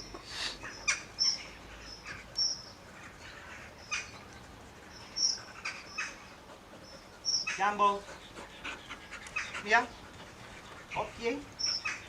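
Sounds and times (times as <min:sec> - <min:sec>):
small birds chirping: 0:00.0 - 0:12.0
harsh bird calls: 0:00.3 - 0:12.0.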